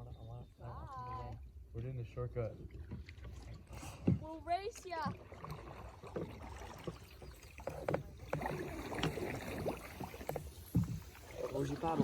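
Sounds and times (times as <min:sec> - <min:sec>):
paddles splashing in water: 0:02.5 - 0:12.0
paddle knocks: 0:07.6 - 0:12.0.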